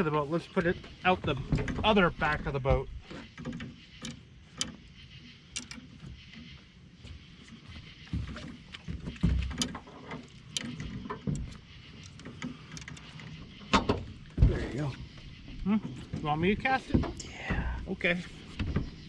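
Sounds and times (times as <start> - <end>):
fishing gear knocks and clicks: 7.5 - 14.8
low thumps against boat hull: 13.8 - 19.0.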